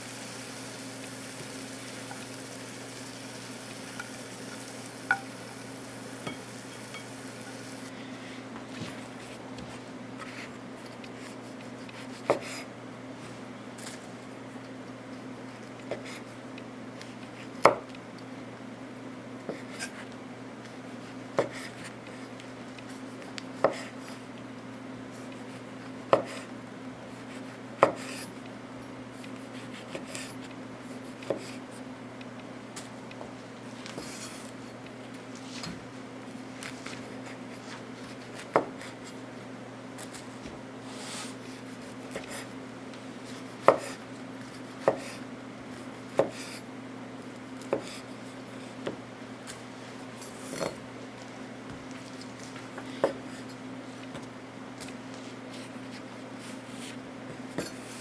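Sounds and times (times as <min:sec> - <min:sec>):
food sizzling in oil: 0:00.0 - 0:07.9
oil popping: 0:00.0 - 0:07.9
knife scraping: 0:00.1 - 0:07.9.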